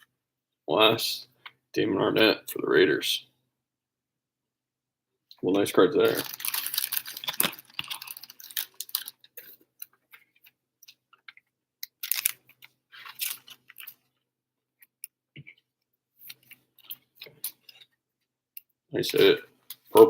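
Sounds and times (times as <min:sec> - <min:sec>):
trading cards shuffling: 0:12.0 - 0:14.0.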